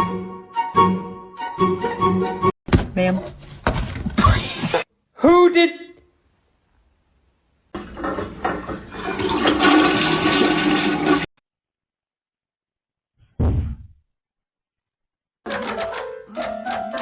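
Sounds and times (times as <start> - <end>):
low thud: 13.4 - 14.0.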